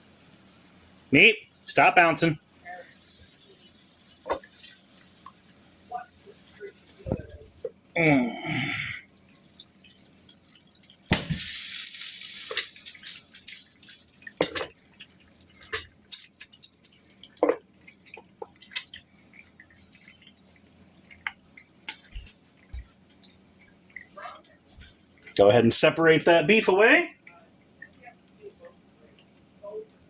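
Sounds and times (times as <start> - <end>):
meat sizzling in oil: 2.6 - 8.0, 8.8 - 25.3.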